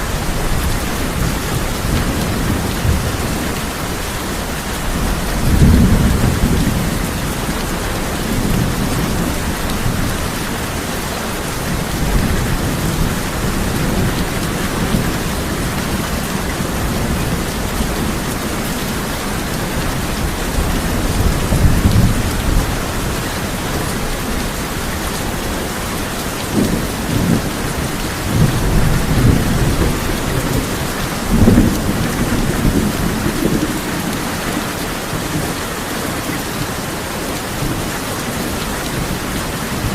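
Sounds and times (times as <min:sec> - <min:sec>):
thunder rumbling: 0:00.0 - 0:35.6
heavy rain on a tin roof: 0:00.0 - 0:39.9.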